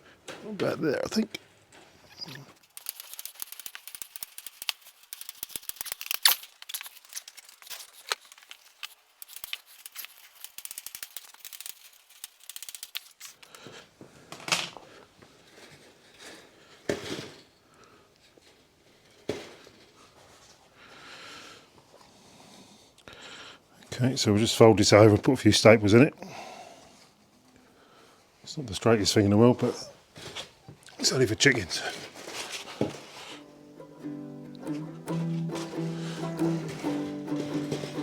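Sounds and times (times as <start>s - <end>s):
wire rustling and rattling: 1.7s - 13.6s
hand cutters snipping wire: 2.6s - 13.5s.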